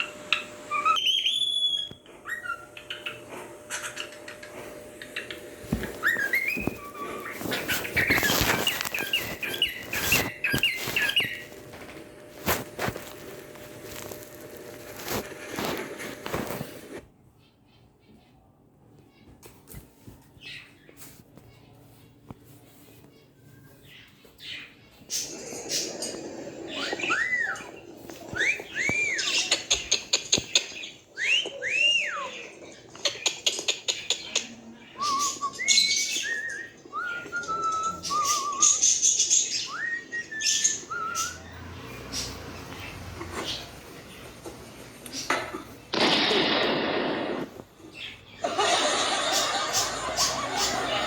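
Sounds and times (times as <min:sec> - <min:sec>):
cockatiel chirping: 0:00.7 - 0:04.2, 0:05.2 - 0:11.6, 0:35.0 - 0:41.5.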